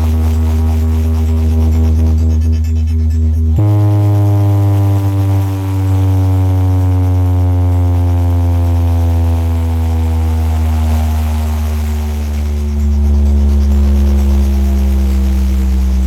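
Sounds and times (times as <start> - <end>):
deep bass: 0.0 - 16.0
falling electronic synth tone: 0.0 - 16.0.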